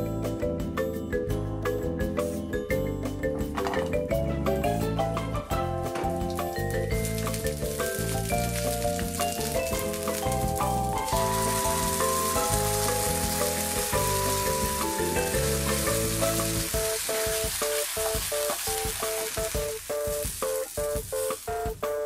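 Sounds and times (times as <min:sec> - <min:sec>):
background music: 0:00.0 - 0:22.0
food sizzling in frying pan: 0:06.2 - 0:22.0.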